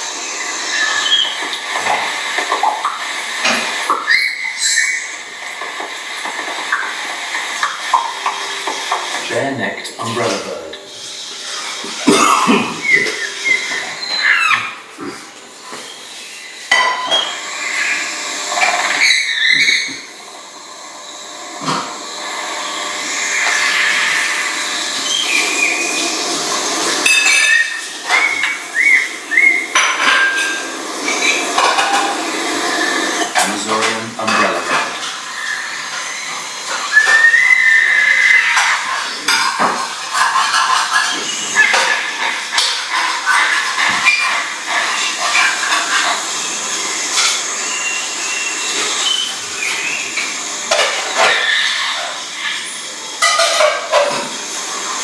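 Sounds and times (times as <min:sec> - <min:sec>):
bird whistling: 0:00.7 - 0:01.4, 0:03.9 - 0:05.2, 0:12.7 - 0:14.8, 0:25.0 - 0:26.0, 0:27.2 - 0:30.0, 0:35.3 - 0:38.8, 0:47.6 - 0:50.2.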